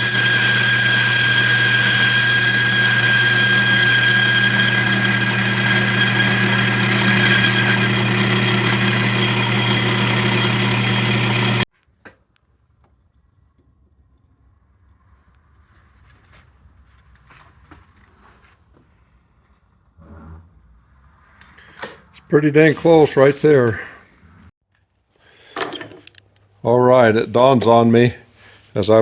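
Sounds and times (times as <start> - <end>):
metal lathe humming and whining: 0.0 - 11.6.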